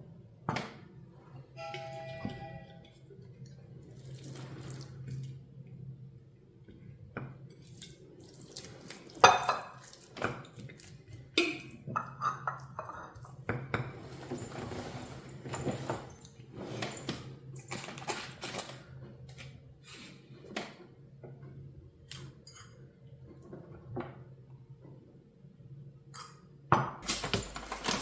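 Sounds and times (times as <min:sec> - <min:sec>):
dishes and cutlery clattering: 0:09.2 - 0:10.4, 0:11.4 - 0:18.8, 0:27.0 - 0:28.0.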